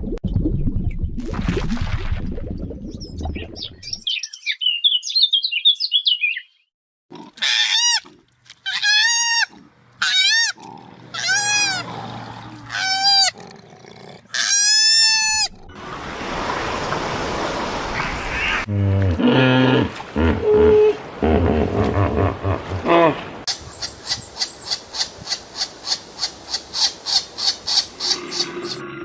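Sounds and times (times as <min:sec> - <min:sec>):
animal calling rising and falling: 0:08.6 - 0:13.4, 0:14.3 - 0:15.8, 0:17.8 - 0:23.2.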